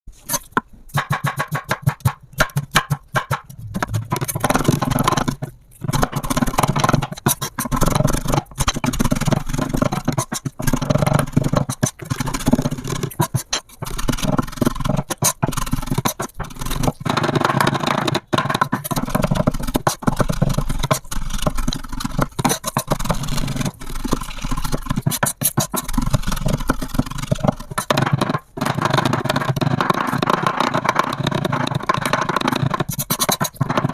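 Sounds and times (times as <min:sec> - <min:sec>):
knife scraping cutting board: 0:00.1 - 0:00.6, 0:02.5 - 0:33.9
knife chopping on cutting board: 0:00.9 - 0:04.6.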